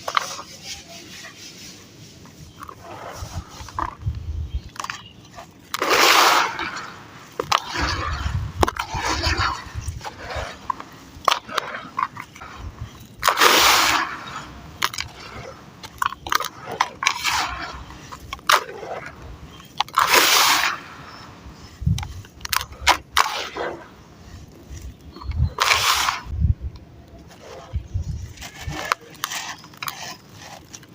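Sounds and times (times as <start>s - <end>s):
gritty crackle: 0.0s - 30.9s
sand and cement crumbling in water: 2.4s - 26.4s
small clicks and crackles: 28.2s - 30.9s.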